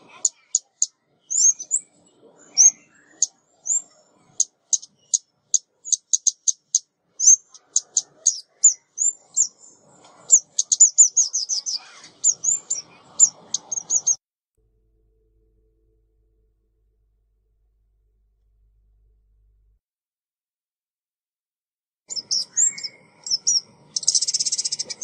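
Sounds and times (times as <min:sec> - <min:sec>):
small bird chip calls: 0:00.0 - 0:14.2, 0:22.1 - 0:25.0.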